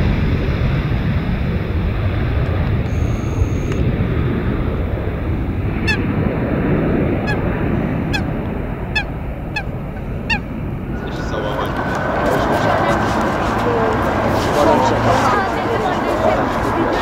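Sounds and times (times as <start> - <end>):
steady low rumble: 0.0 - 17.0
bird honking: 5.8 - 6.1, 7.2 - 10.6.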